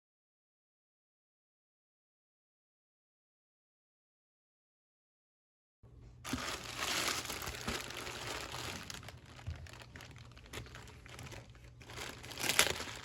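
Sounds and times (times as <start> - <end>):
packaging crinkling: 6.3 - 13.0.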